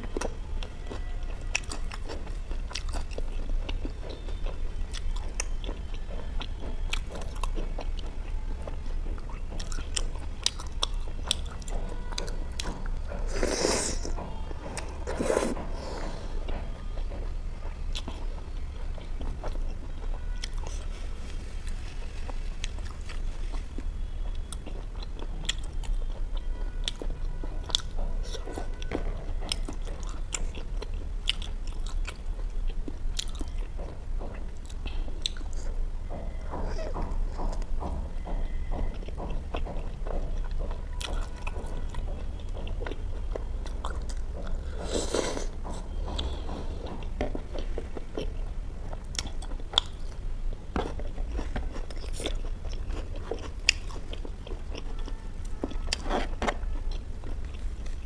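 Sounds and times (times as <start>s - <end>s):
wet chewing and smacks: 0.9s - 14.2s, 38.4s - 58.0s.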